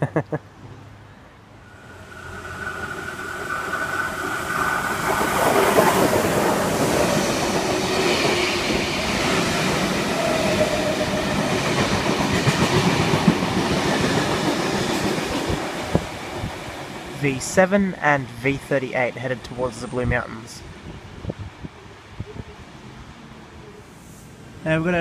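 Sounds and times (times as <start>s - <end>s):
train whine: 1.3s - 17.7s
train rumbling: 1.6s - 20.2s.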